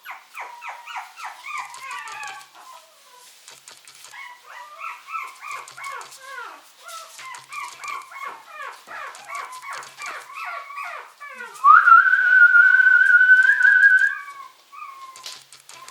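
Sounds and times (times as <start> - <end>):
puppies whining and yelping: 0.0 - 11.8, 13.1 - 15.9.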